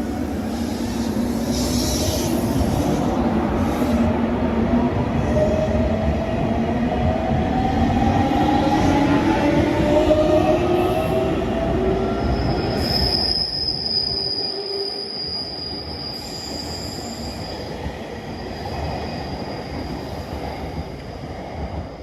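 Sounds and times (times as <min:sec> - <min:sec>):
high wheel squeal: 0:12.4 - 0:17.7.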